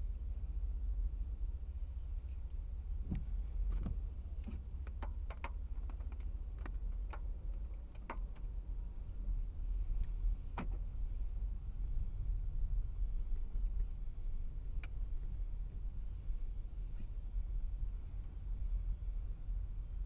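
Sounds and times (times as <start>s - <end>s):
car driving rumble inside cabin: 0.0s - 20.0s
sharp knocks and clicks: 3.1s - 8.5s.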